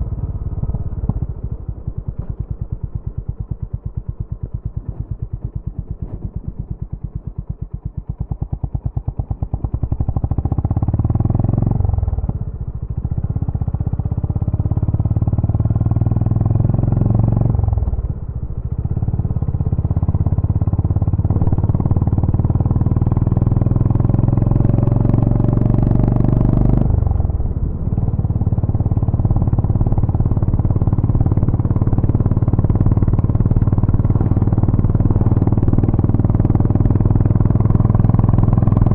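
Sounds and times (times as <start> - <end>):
motorcycle engine thumping: 0.7 - 7.7.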